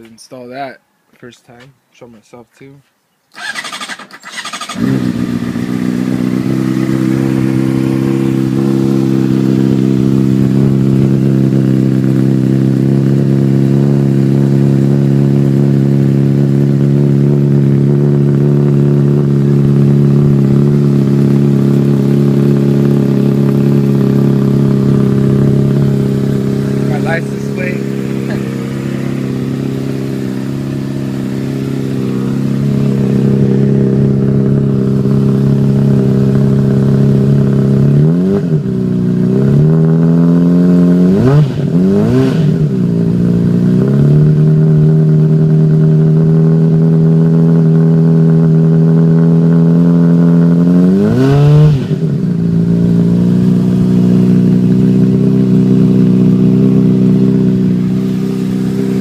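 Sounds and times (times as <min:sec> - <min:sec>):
motorcycle engine idling and revving: 0:03.4 - 0:59.0.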